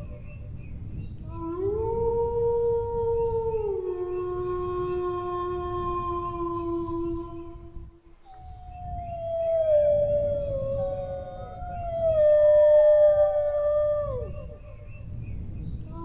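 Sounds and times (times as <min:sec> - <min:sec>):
dogs howling: 0:08.6 - 0:14.9.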